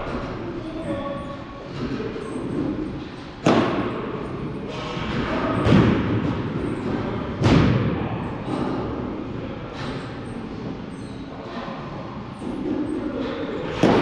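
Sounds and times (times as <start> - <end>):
baseballs thumping: 1.7 - 9.2, 13.6 - 14.0.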